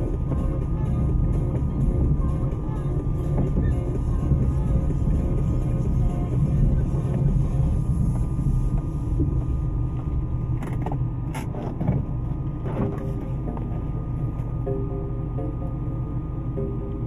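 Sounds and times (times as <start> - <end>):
car engine rumble: 0.0 - 17.0.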